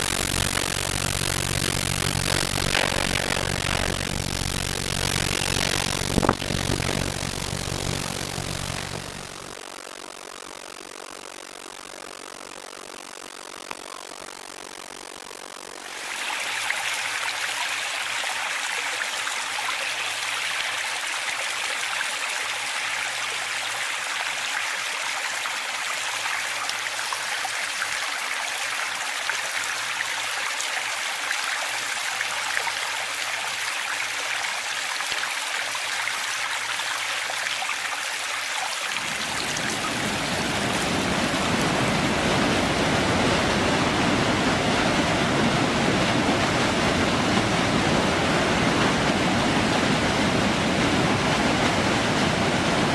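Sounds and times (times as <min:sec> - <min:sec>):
deep rumble: 0:00.0 - 0:09.6
rushing water: 0:15.8 - 0:52.9.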